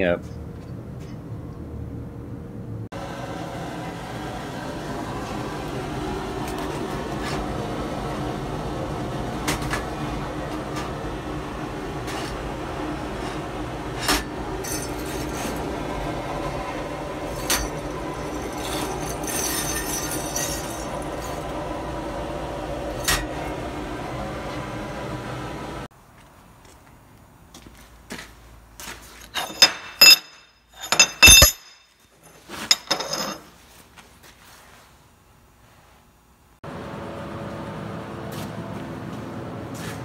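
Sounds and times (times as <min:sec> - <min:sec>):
machine hum: 0:00.5 - 0:25.9, 0:36.2 - 0:40.0
metal clinks and knocks: 0:17.3 - 0:21.4, 0:29.3 - 0:33.5.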